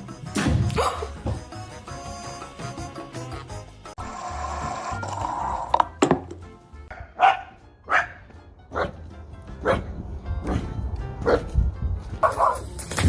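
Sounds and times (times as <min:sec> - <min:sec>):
dog barking: 0:06.9 - 0:09.0, 0:09.6 - 0:09.9, 0:10.5 - 0:11.5, 0:12.2 - 0:12.7.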